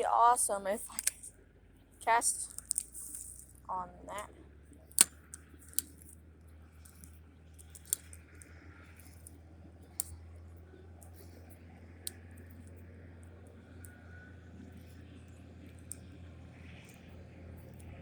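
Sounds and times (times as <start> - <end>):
steady low hum: 0.0 - 18.0
faint sharp clicks: 0.9 - 1.3.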